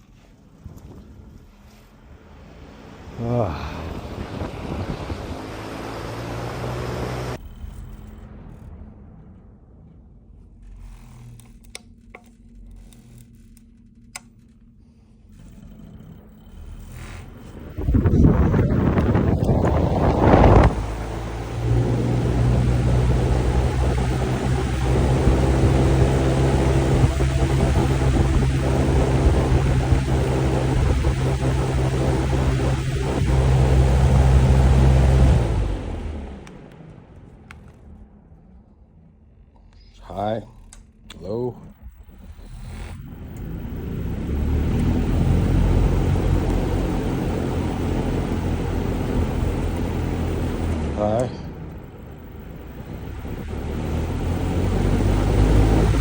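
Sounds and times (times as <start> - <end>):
fan humming: 0.0 - 56.0
loud noisy burst: 2.0 - 11.5.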